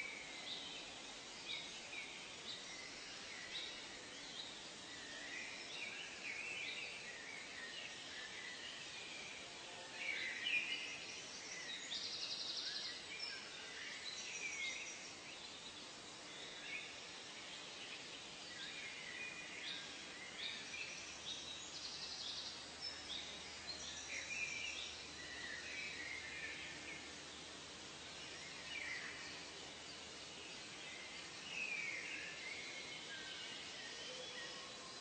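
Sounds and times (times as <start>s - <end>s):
soft background hiss: 0.0s - 35.0s
birds calling and singing: 10.0s - 35.0s.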